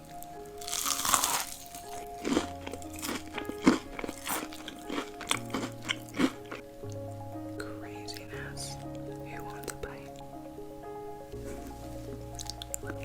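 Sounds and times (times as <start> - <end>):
person chewing crunchy food: 0.0 - 6.9, 12.3 - 13.0
background music with held notes: 0.0 - 13.0.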